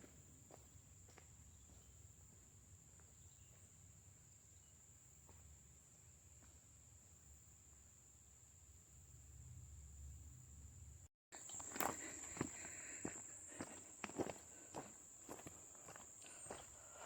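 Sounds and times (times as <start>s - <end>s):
soft footsteps on overgrown ground: 0.0s - 3.8s, 11.4s - 17.0s
insects trilling: 11.4s - 17.0s.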